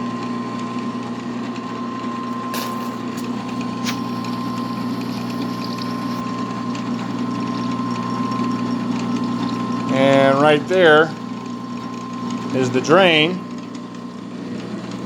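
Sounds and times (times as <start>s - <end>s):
drill press motor humming: 0.5s - 15.0s
cutting fluid trickling: 2.2s - 14.0s.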